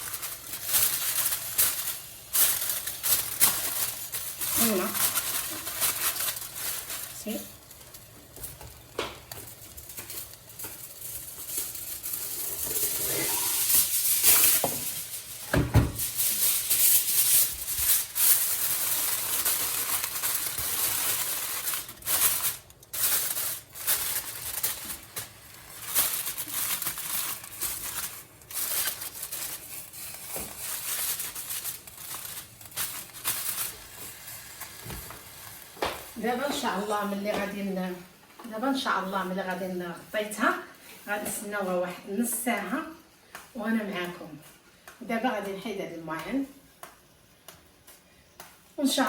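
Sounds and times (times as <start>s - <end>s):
covering crinkling and tearing: 0.0s - 36.2s.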